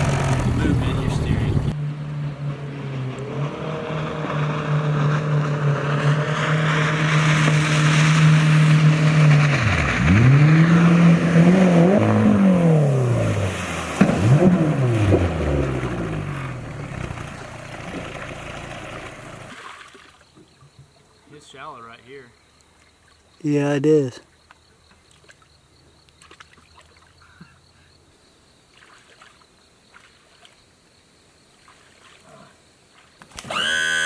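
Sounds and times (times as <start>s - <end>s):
jet outboard motor running: 0.0s - 19.5s, 33.4s - 34.0s.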